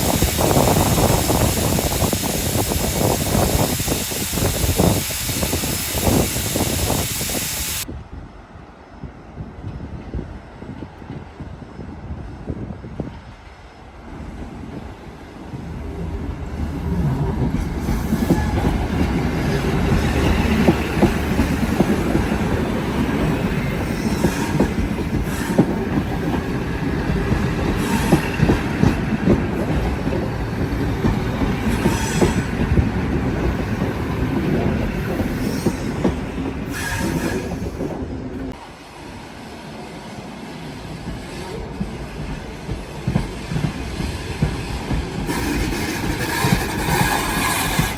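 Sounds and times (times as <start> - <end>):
train rolling on rails: 0.0 - 47.9
wheel squeals: 31.0 - 32.9.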